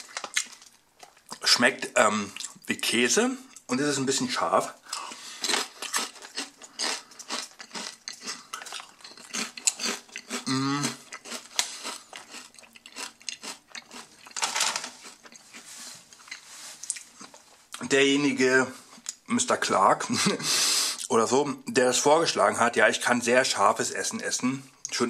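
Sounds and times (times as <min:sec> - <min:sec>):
chewing crisp potato chips: 0:00.0 - 0:02.8, 0:04.9 - 0:17.8
person humming: 0:10.5 - 0:11.0.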